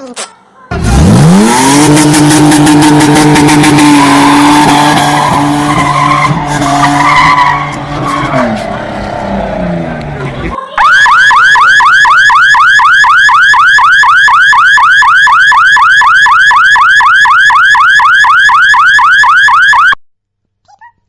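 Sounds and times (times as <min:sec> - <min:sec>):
electronic warbling siren: 0:10.7 - 0:20.0.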